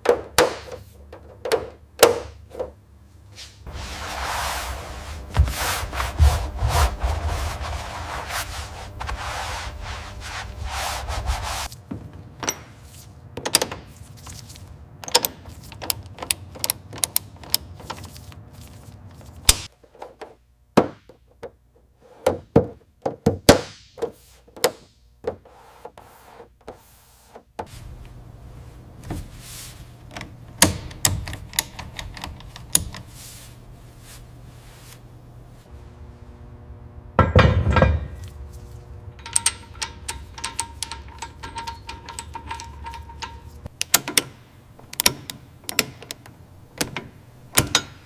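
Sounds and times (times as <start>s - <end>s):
low steady hum: 0.0s - 20.8s, 25.1s - 48.0s
knocks clicks and taps: 39.2s - 48.0s.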